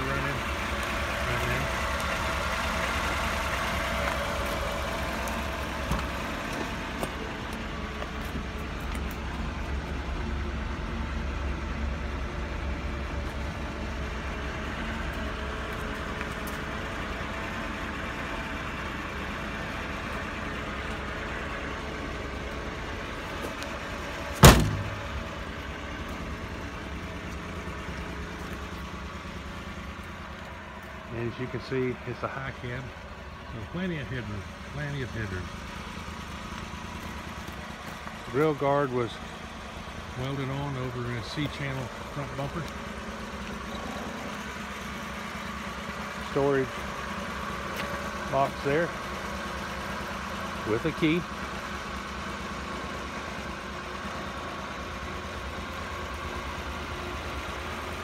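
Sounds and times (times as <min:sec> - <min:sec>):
truck engine idling: 0:00.0 - 0:58.0
sharp knock: 0:24.4 - 0:24.9.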